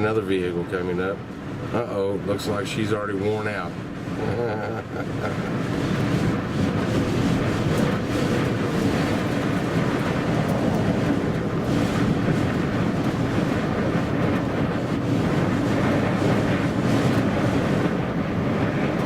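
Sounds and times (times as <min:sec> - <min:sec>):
loud wind on microphone: 0:00.0 - 0:19.0.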